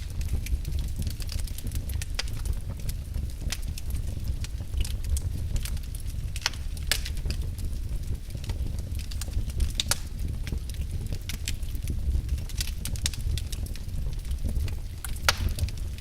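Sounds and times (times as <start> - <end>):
fire crackling and popping: 0.0 - 16.0
low rumble of flames: 0.0 - 16.0.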